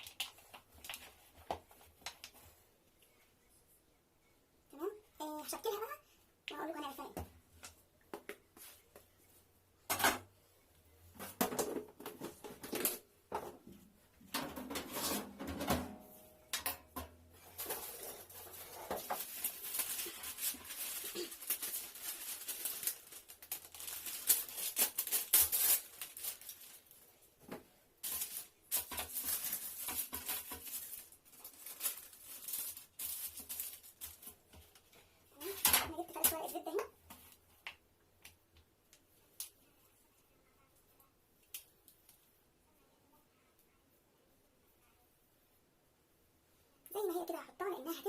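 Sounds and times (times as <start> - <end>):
paper rustling: 17.4 - 27.0, 28.0 - 34.4.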